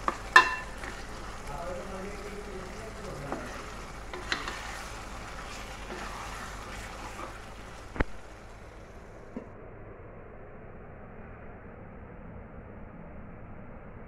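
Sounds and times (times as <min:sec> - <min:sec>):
spatula stirring and scraping: 0:00.0 - 0:08.7
paste sizzling in oil: 0:00.0 - 0:09.0.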